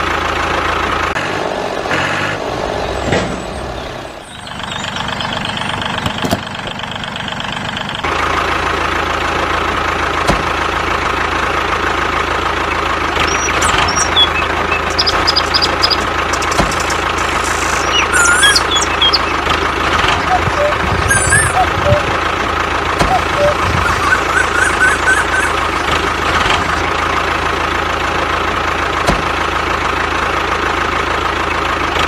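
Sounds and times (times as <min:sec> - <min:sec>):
short high chirps: 0:17.4 - 0:19.5, 0:20.2 - 0:22.2, 0:23.1 - 0:25.7.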